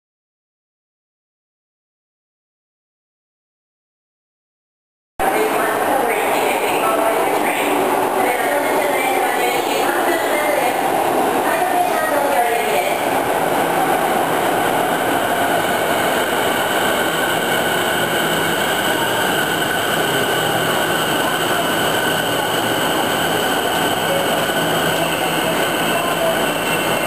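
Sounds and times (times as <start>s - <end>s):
wheels rumbling on rail: 5.2s - 27.0s.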